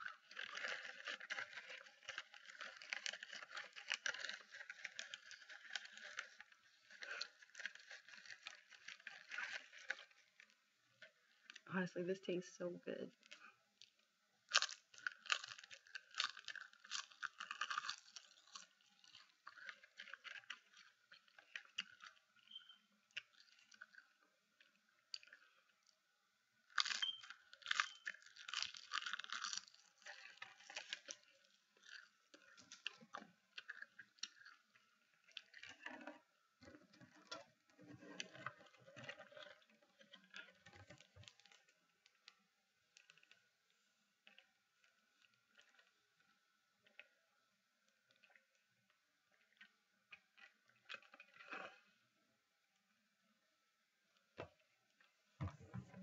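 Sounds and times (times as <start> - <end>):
crunching and chewing snack: 0.0 - 11.9, 13.1 - 52.1.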